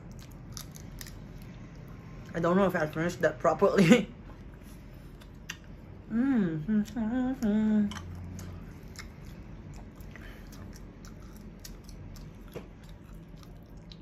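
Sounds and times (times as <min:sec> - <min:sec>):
person chewing food: 0:00.0 - 0:02.3, 0:04.4 - 0:06.0, 0:06.8 - 0:14.0
person humming: 0:06.0 - 0:08.1.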